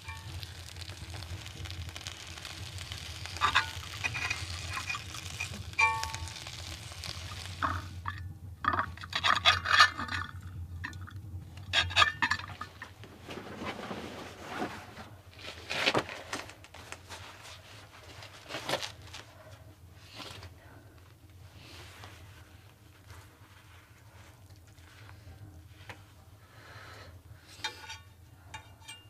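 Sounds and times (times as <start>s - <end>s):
cookware and utensils clinking: 0.0s - 0.4s, 3.4s - 6.5s, 8.7s - 10.4s, 11.7s - 12.8s, 27.5s - 29.0s.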